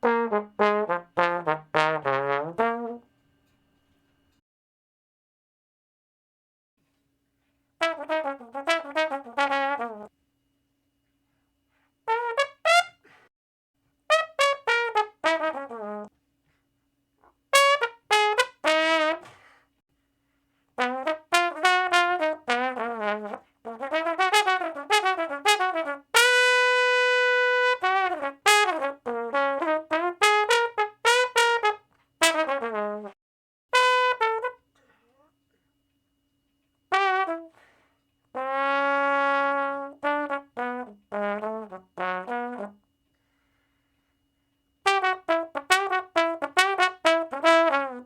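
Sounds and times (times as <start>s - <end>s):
brass instrument playing: 0.0s - 3.1s, 7.8s - 10.1s, 12.1s - 13.2s, 14.1s - 16.1s, 17.5s - 19.5s, 20.8s - 34.7s, 36.9s - 37.6s, 38.4s - 42.8s, 44.9s - 48.0s.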